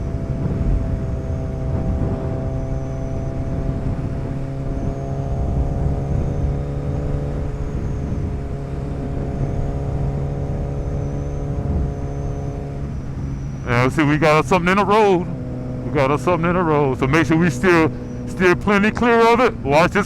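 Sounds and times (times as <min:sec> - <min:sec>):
motorcycle engine running: 0:00.0 - 0:20.0
wind noise: 0:00.0 - 0:20.0.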